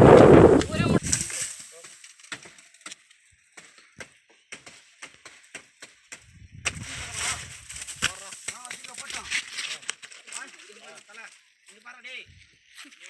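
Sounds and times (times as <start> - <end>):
steady rushing noise: 0.0 - 1.2.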